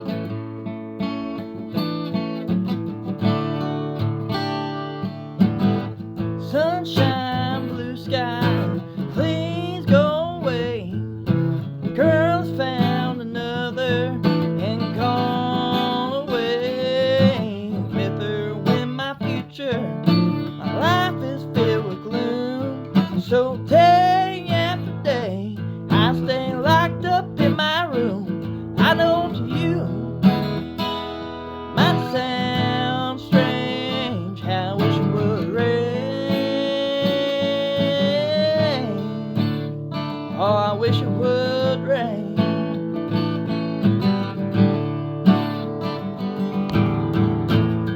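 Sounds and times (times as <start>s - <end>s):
acoustic guitar strumming: 0.0s - 47.9s
person singing: 6.4s - 11.2s, 11.9s - 30.5s, 31.7s - 39.7s, 40.3s - 42.6s.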